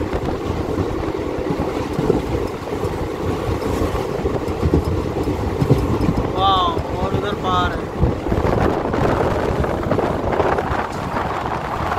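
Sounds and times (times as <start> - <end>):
train rumbling and rattling: 0.0 - 11.9.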